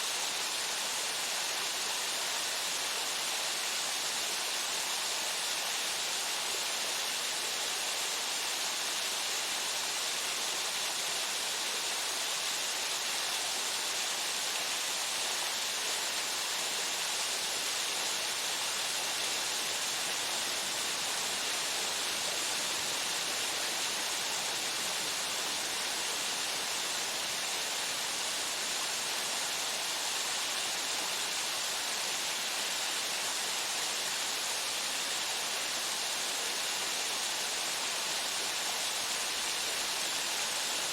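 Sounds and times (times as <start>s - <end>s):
waterfall rushing: 16.3s - 40.9s.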